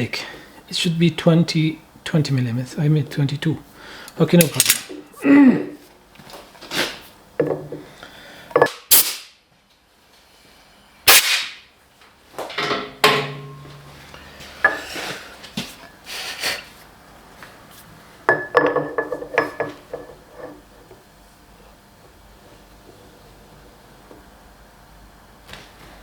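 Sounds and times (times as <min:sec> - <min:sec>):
metal tools clanking on workbench: 0:04.4 - 0:05.0, 0:12.5 - 0:14.0.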